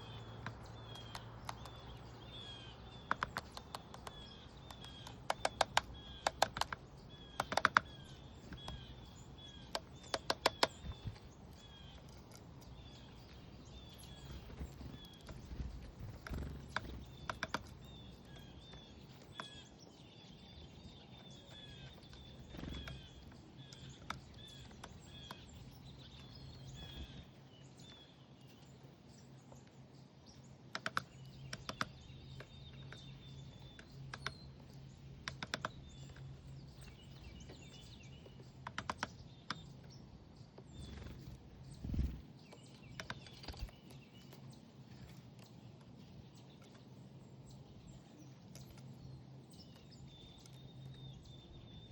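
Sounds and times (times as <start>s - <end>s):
faint low hum: 0.0s - 51.9s
songbirds chirping: 0.0s - 51.9s
sharp clicks: 0.4s - 2.0s, 2.9s - 13.2s, 14.0s - 19.6s, 30.7s - 37.0s, 38.6s - 39.9s, 40.9s - 45.9s.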